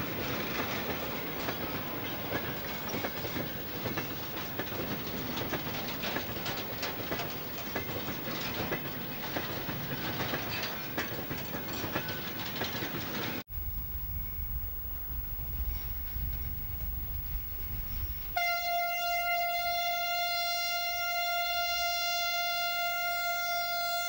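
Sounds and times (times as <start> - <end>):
freight wagons clicking over rails: 0.0 - 18.4.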